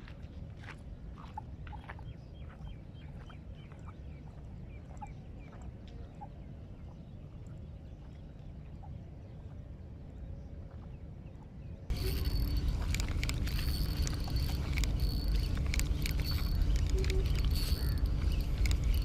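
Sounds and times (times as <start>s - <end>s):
low rumble: 11.9s - 19.0s
small birds chirping: 11.9s - 19.0s.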